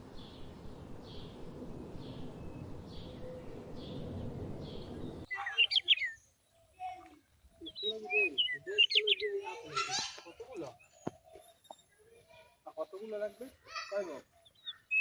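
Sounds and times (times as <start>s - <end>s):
sharp bird chirps: 4.7s - 12.4s, 14.4s - 15.0s.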